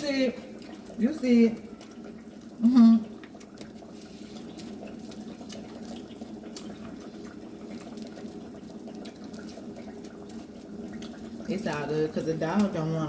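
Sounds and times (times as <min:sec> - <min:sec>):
frying oil sizzling: 0:00.0 - 0:13.0
small crackles and pops: 0:00.0 - 0:13.0.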